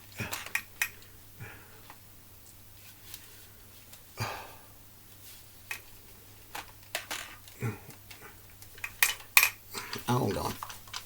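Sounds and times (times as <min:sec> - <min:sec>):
plastic gun parts clicking: 0:06.5 - 0:11.0.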